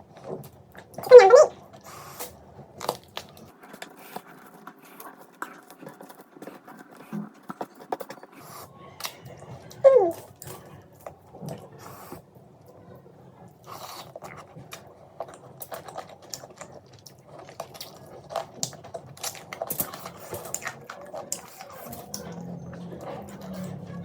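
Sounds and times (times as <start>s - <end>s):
chewing and biting crunches: 13.6s - 24.0s
low hum: 21.9s - 24.0s.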